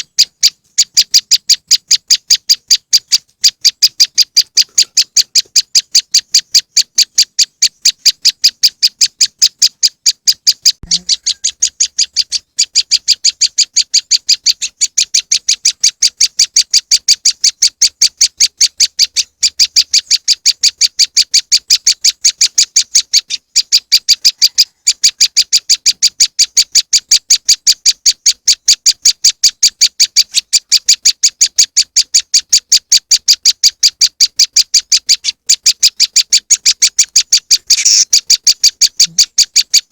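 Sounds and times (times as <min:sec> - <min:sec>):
sharp high bird chip notes: 0:34.9 - 0:39.4.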